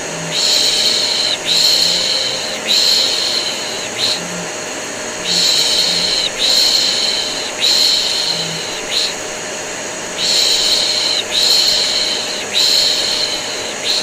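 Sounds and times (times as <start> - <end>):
vacuum cleaner running: 0.0 - 14.0
person shushing: 5.2 - 9.2.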